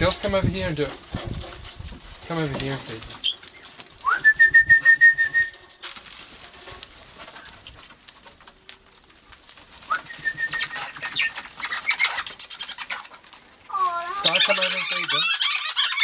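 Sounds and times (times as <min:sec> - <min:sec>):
parrots chattering and squawking: 0:00.0 - 0:04.1, 0:05.6 - 0:16.0
high trilling whistle: 0:04.0 - 0:05.6, 0:09.9 - 0:11.0.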